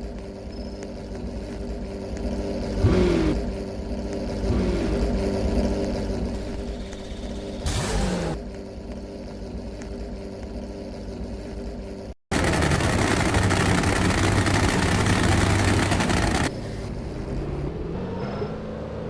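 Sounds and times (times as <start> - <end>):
car engine idling: 12.3 - 16.8
car engine humming: 12.3 - 18.7.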